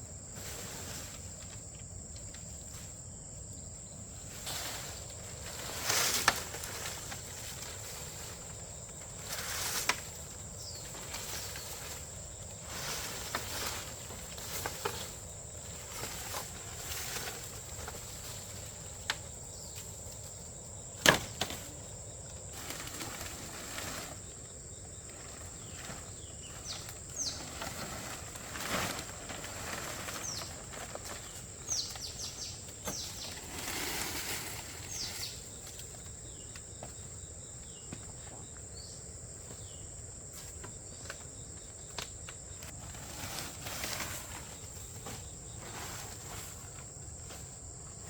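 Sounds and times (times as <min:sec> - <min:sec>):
high drone of insects: 0:00.0 - 0:48.0
bird chirps: 0:26.2 - 0:27.6.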